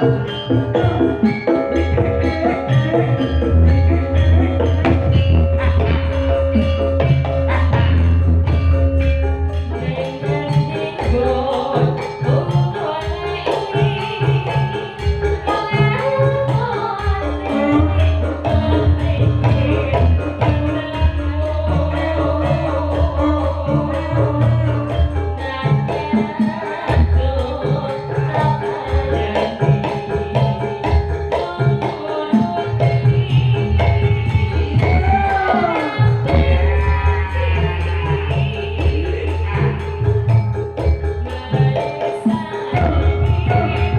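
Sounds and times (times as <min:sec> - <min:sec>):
hand drumming: 0:00.0 - 0:43.9
jingling percussion: 0:00.0 - 0:43.9
pitched instruments: 0:00.0 - 0:43.9
person singing with gliding pitch: 0:31.5 - 0:40.4, 0:41.3 - 0:43.9.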